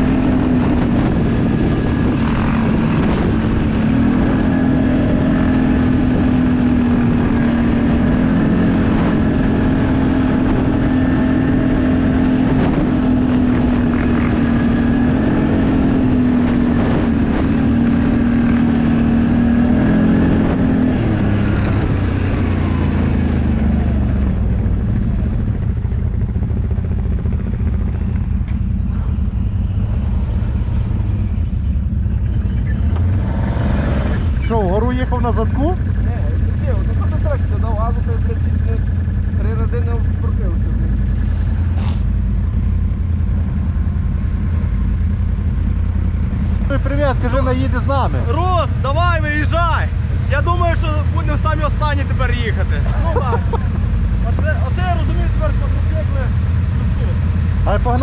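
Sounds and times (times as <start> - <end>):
vehicle engine revving: 0.0 - 58.0.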